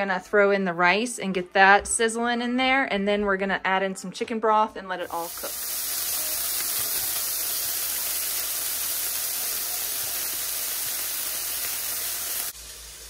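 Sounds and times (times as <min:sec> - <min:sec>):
food sizzling in a pot: 0:05.0 - 0:13.0.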